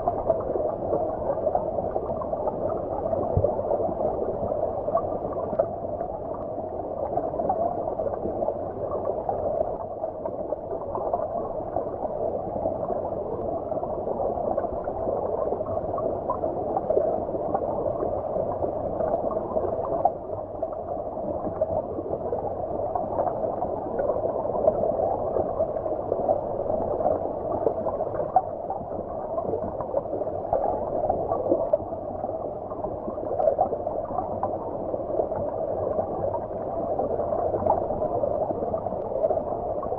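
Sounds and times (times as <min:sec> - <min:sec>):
muffled stream water gurgling: 0:00.0 - 0:39.9.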